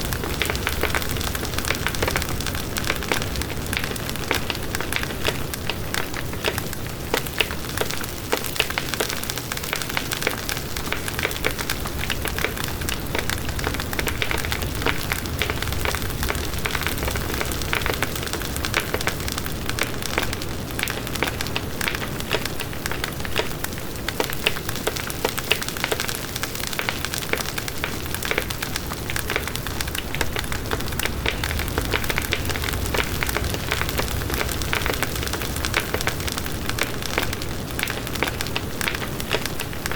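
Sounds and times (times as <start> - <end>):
wood crackling and popping: 0.0 - 39.9
low rush of flames: 11.4 - 22.3, 27.6 - 39.9.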